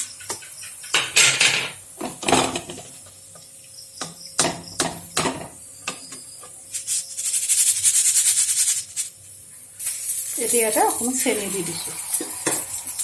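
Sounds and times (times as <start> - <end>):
metal utensil scraping a pan: 10.2 - 13.0.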